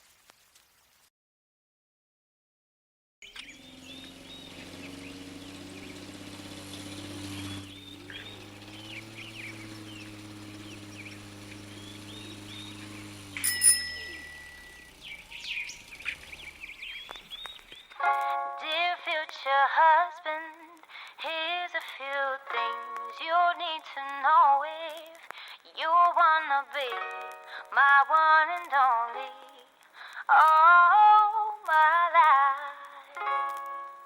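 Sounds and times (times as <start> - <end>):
birds chirping: 3.2 - 18.0
held low chord: 4.2 - 16.6
bright ringing strike: 13.4 - 15.0.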